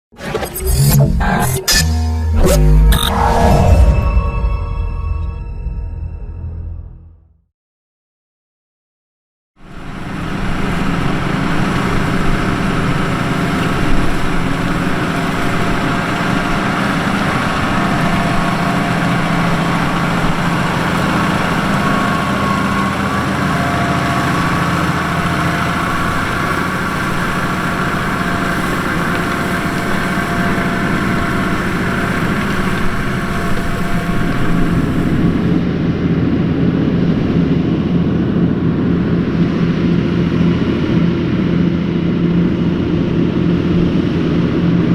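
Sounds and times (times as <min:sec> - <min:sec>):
tractor engine under load: 0:09.7 - 0:44.7.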